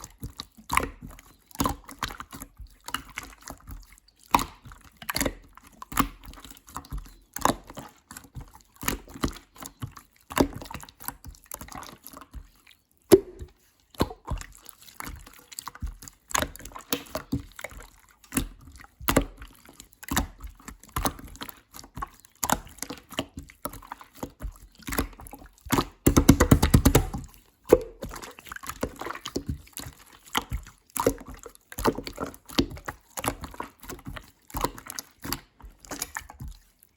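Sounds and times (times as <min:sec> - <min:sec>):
slime squished by hand: 0:13.0 - 0:15.6, 0:24.2 - 0:36.7.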